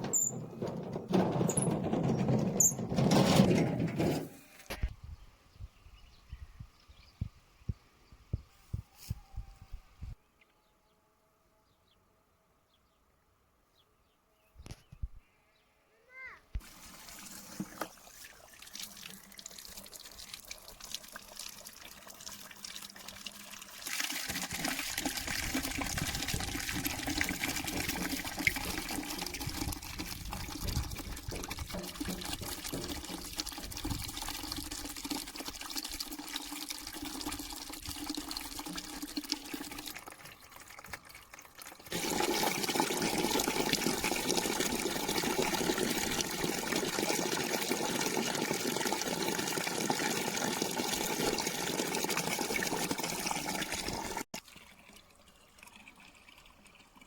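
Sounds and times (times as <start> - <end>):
water running: 0.0 - 3.1, 16.6 - 54.3.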